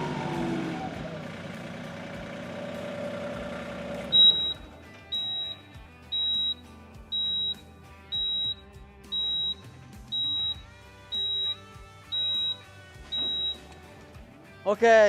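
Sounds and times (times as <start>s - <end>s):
tractor engine running: 0.0s - 14.4s
high-pitched electronic beeps: 4.1s - 13.6s.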